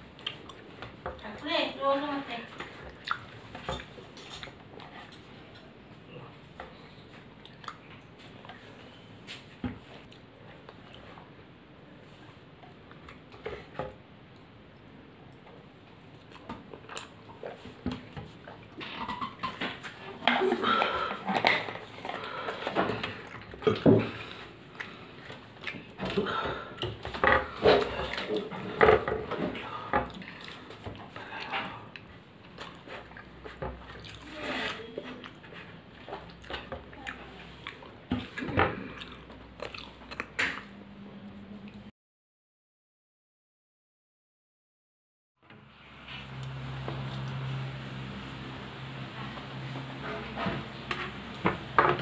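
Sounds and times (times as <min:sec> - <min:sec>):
person chewing food: 0:00.0 - 0:01.2, 0:02.8 - 0:09.0, 0:14.3 - 0:19.1, 0:19.9 - 0:40.8.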